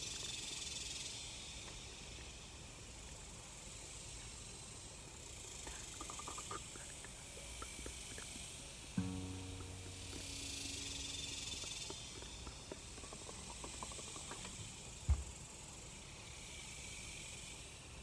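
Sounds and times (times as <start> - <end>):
steady hiss: 5.3 - 17.4
low note ringing: 9.0 - 12.5.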